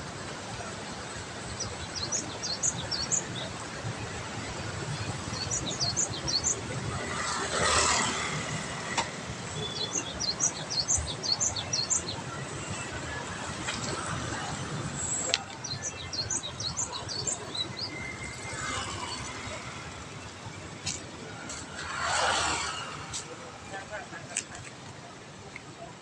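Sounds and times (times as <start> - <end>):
small birds chirping: 1.5 - 3.8, 4.7 - 7.2, 9.6 - 12.5, 15.3 - 20.2.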